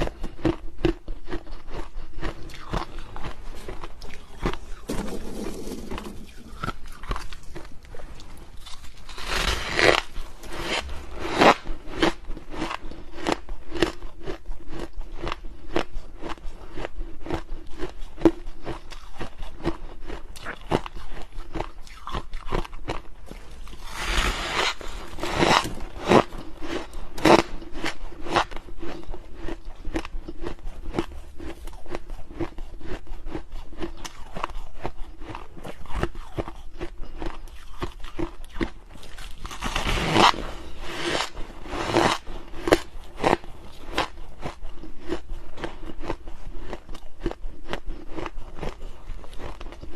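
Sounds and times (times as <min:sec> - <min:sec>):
crunching and chewing ice: 0:00.0 - 0:49.9.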